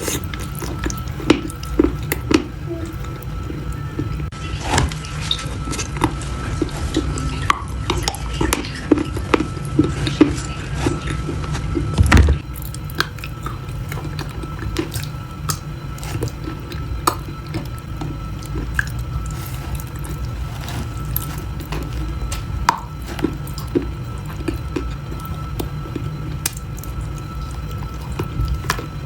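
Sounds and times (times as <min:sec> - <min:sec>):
crisp crunching and crackling: 0:00.0 - 0:04.3, 0:12.4 - 0:29.0
steady low hum: 0:00.0 - 0:29.0.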